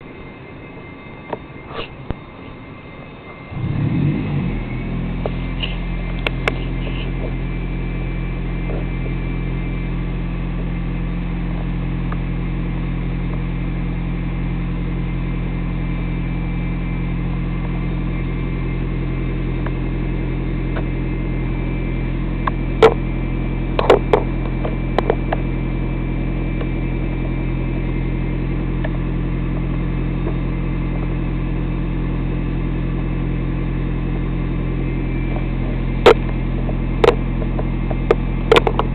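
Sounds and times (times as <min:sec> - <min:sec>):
car engine idling: 0:00.0 - 0:38.9
sharp engine clicks: 0:35.3 - 0:38.9.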